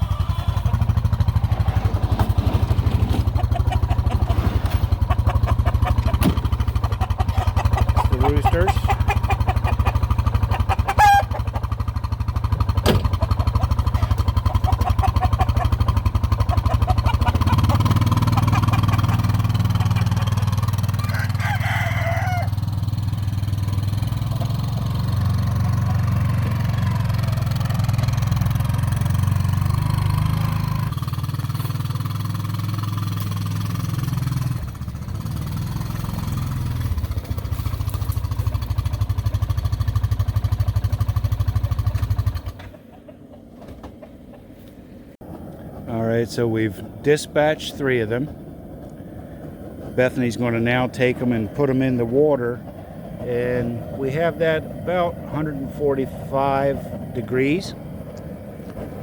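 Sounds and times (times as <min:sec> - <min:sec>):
chicken squawk: 0:00.0 - 0:01.9, 0:03.1 - 0:11.9, 0:13.1 - 0:22.6
small engine humming: 0:00.0 - 0:42.9.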